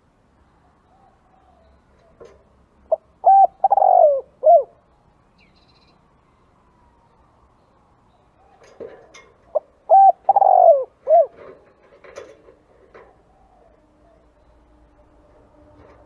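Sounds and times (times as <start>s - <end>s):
dove cooing: 0.8s - 4.8s, 8.4s - 11.9s.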